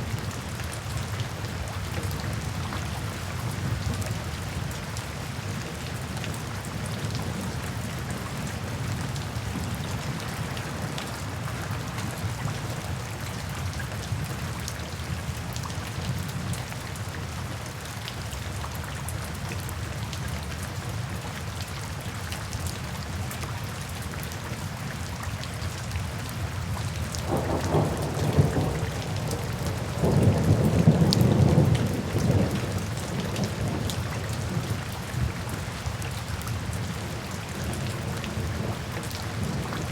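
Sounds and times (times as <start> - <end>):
heavy rain falling: 0.0 - 39.9
thunder rumbling: 27.2 - 35.4.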